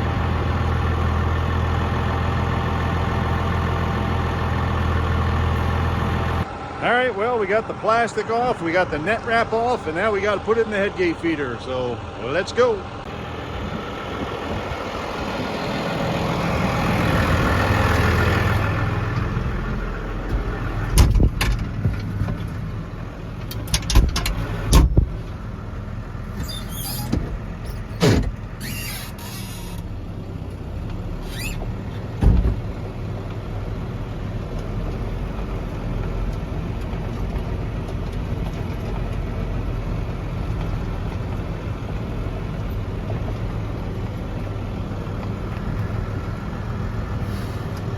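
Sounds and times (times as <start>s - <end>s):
tractor engine running: 0.0s - 47.9s
metal knocks and clanks: 20.3s - 22.6s, 23.4s - 25.2s.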